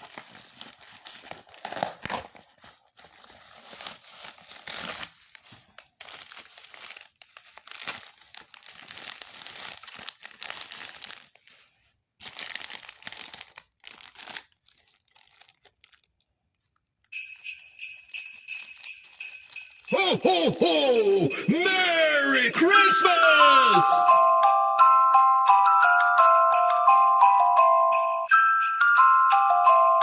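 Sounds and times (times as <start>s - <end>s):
packaging crinkling and tearing: 0.0s - 16.8s.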